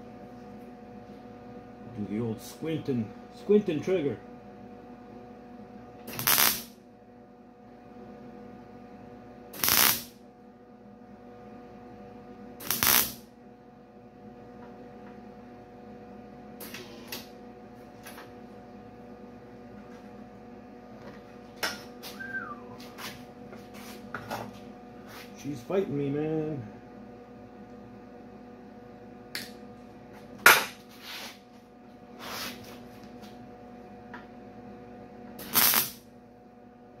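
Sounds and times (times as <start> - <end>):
electrical hum: 0.0 - 37.0
welder tack-weld bursts: 6.1 - 6.7, 9.6 - 10.1, 12.6 - 13.2, 35.4 - 36.0.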